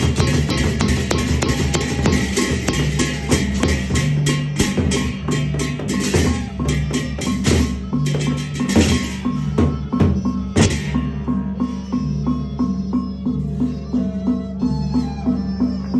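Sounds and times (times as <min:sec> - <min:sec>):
drum and clicking percussion: 0:00.0 - 0:11.4.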